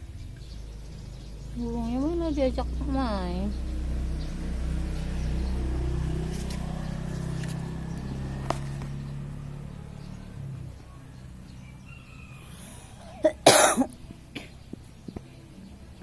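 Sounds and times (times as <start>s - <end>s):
low steady hum: 0.0s - 16.0s
person coughing: 13.2s - 14.6s.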